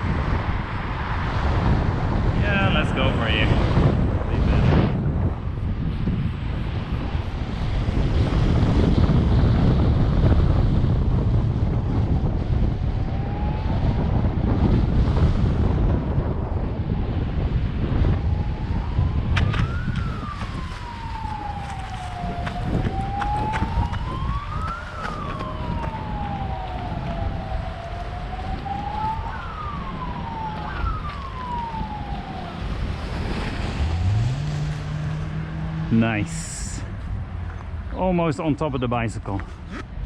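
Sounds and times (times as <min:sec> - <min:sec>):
wind on microphone: 0:00.0 - 0:38.2
distant siren wailing: 0:04.6 - 0:37.9.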